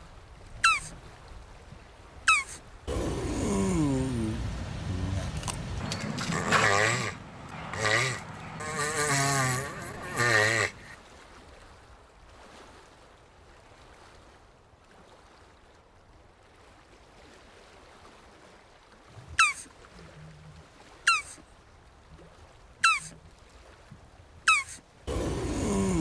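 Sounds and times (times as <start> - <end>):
tortoise groaning call: 0.6 - 0.9, 2.3 - 11.0, 19.2 - 21.4, 22.8 - 23.2, 24.5 - 26.0.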